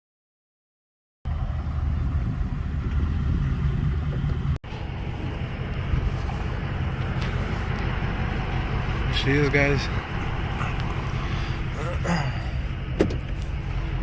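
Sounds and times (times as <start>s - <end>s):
car engine idling: 1.3s - 14.0s.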